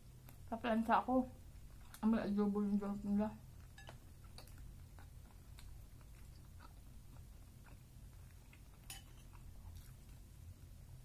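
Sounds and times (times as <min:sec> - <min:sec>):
low room hum: 0:00.0 - 0:11.0
faint chewing: 0:01.4 - 0:11.0
cutlery clicking against a plate: 0:08.8 - 0:09.4.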